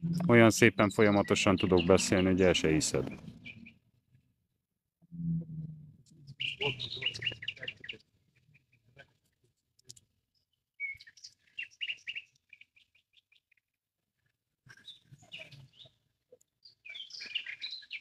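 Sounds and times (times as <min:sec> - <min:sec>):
small songbirds chirping: 0:00.0 - 0:03.8, 0:06.2 - 0:08.0, 0:10.8 - 0:13.4, 0:14.7 - 0:16.0, 0:16.6 - 0:18.0.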